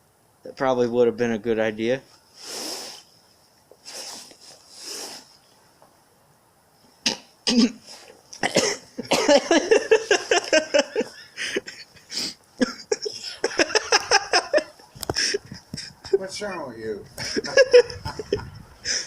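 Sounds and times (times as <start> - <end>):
person coughing: 7.5 - 7.8, 8.4 - 9.7, 12.6 - 13.7
person laughing hard: 9.0 - 16.2, 17.1 - 19.0.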